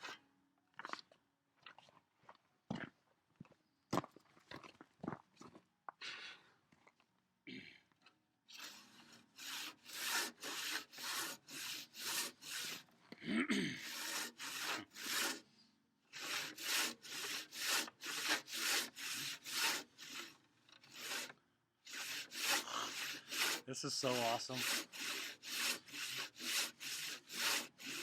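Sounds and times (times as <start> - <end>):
handsaw cutting wood: 8.5 - 13.0, 13.8 - 15.5, 16.1 - 28.0.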